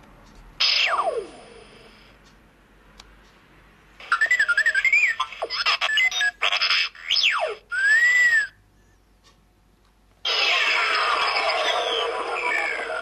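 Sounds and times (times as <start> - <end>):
fast falling zap: 10.3 - 13.0
warbling electronic tone: 10.3 - 13.0.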